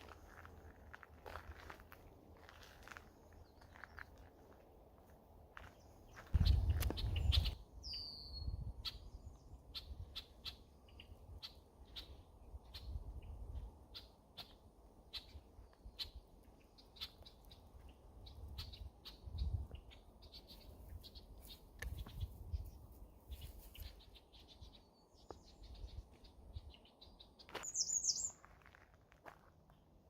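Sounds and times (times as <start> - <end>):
birds chirping: 5.6 - 28.5.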